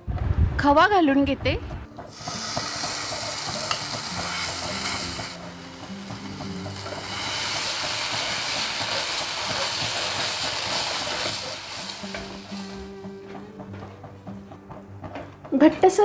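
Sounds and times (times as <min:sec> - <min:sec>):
quiet background music: 0:00.0 - 0:16.0
food sizzling in a pan: 0:02.0 - 0:13.1.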